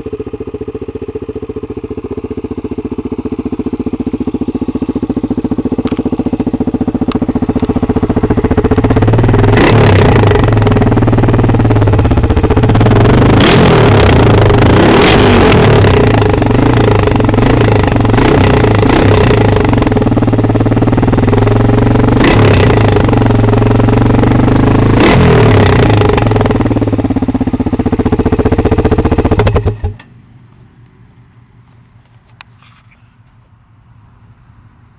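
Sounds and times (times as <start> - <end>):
atv engine revving: 0.0 - 30.1.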